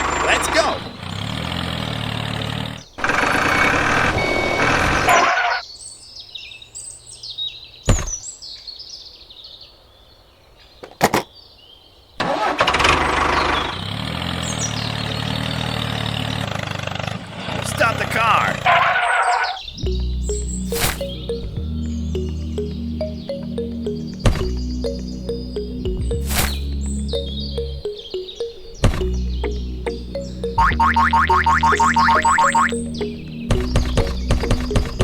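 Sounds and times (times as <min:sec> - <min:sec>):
engine humming: 0:00.0 - 0:05.2, 0:12.2 - 0:18.9, 0:19.7 - 0:35.0
high chirps: 0:19.6 - 0:35.0
sharp clicks: 0:33.5 - 0:35.0.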